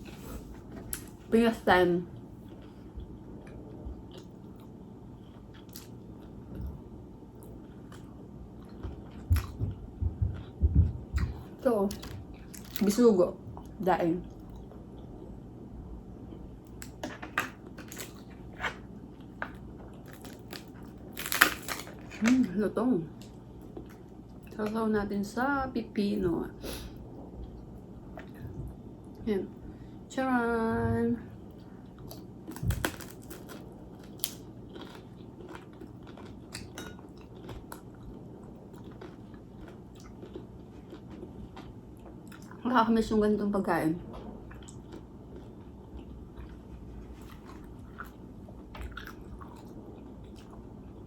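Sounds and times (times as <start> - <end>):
crunching and chewing fried fish: 2.2 - 9.8, 11.2 - 13.0, 16.7 - 22.4, 31.5 - 42.6, 44.4 - 51.0.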